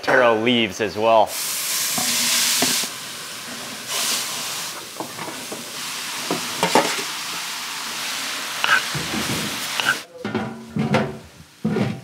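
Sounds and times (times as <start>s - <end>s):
food sizzling in a pot: 1.3s - 10.1s.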